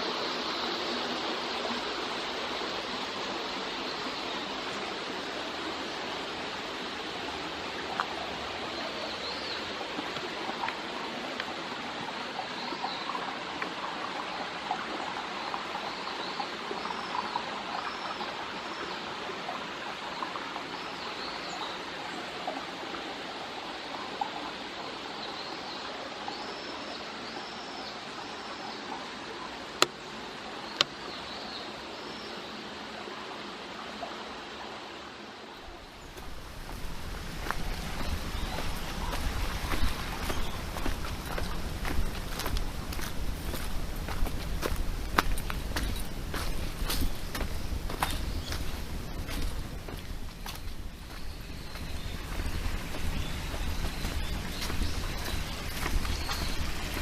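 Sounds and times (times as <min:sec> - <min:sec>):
mountain stream rushing: 0:00.0 - 0:57.0
small birds chirping: 0:35.6 - 0:57.0.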